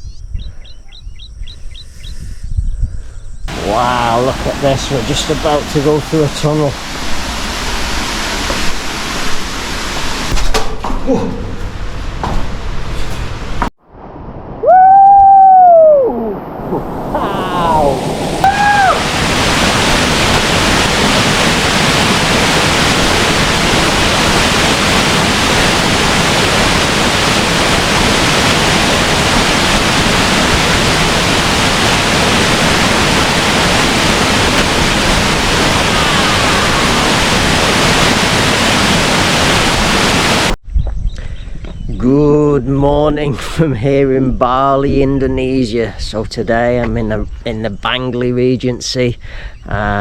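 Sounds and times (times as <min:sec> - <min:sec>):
waterfall pouring: 0:03.5 - 0:13.7, 0:17.2 - 0:40.6.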